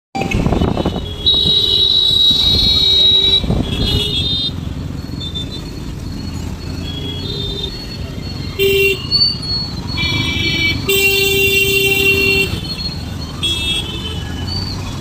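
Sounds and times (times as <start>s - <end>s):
road traffic noise: 0.1s - 15.0s
vehicle horn honking: 0.2s - 4.6s, 10.0s - 12.6s, 13.4s - 14.2s.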